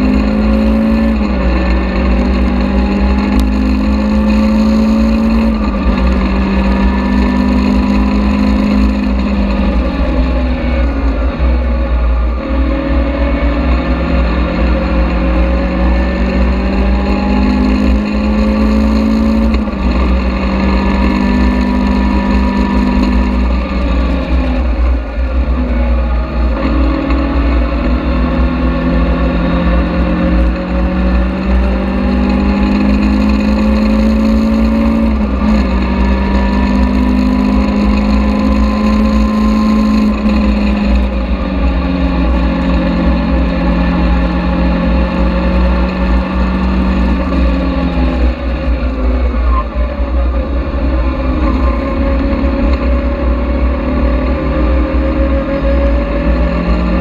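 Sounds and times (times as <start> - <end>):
car engine running hard: 0.0 - 57.0
wind and road noise rumble: 0.0 - 57.0.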